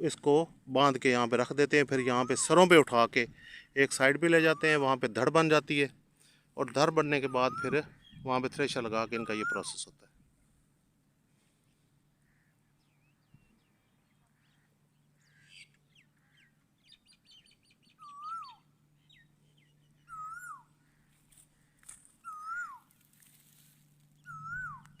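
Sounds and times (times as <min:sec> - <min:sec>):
high bird chirps and trill: 0:07.1 - 0:08.4, 0:09.0 - 0:09.8, 0:15.2 - 0:20.7, 0:22.2 - 0:23.1, 0:24.2 - 0:25.0
bird whistling rising and dropping: 0:20.1 - 0:20.6, 0:22.2 - 0:22.8, 0:24.2 - 0:25.0.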